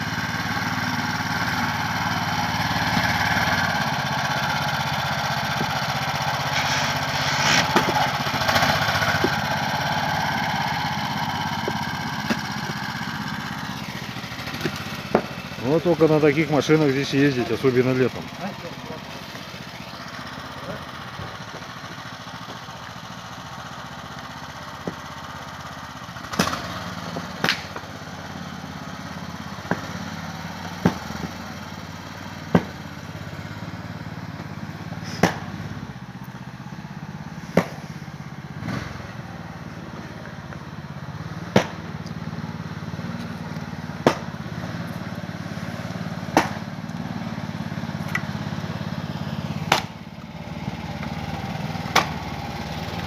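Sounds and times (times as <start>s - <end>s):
engine idling hum: 0.0s - 53.0s
firewood being split with maul: 5.5s - 15.6s, 26.3s - 27.9s, 32.5s - 32.8s, 35.0s - 35.6s, 41.5s - 41.8s, 43.2s - 47.1s, 49.4s - 50.0s, 50.6s - 52.4s.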